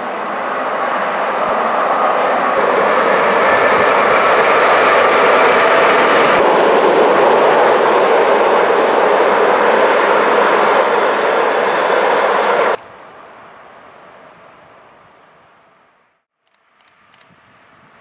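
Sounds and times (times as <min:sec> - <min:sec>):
train wheels on rails passing: 0:00.0 - 0:12.8.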